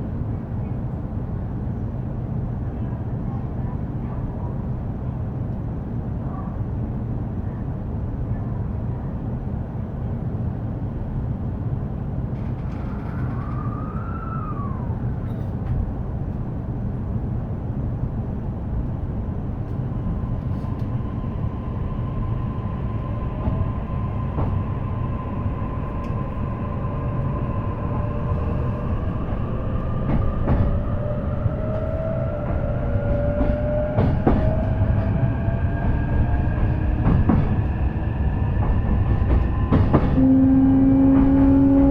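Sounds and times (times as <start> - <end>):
train wheels rumbling on rails: 10.9 - 41.9.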